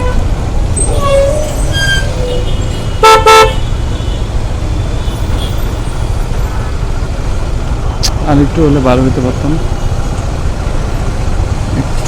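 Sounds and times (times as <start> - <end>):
road traffic rumble: 0.0 - 12.0
vehicle horn honks: 1.0 - 4.2.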